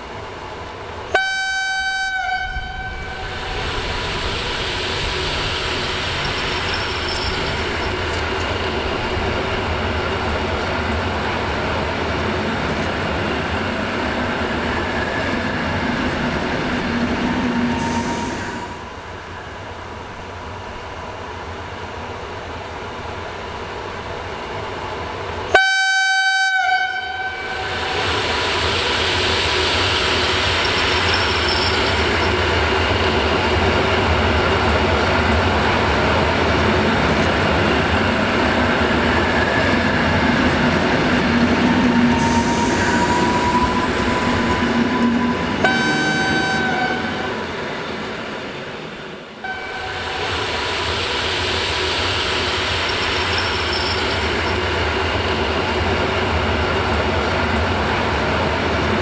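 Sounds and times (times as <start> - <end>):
passing train rumble: 0.0 - 59.0
train horn: 1.1 - 3.6, 25.5 - 28.0, 44.9 - 47.3, 49.4 - 50.4.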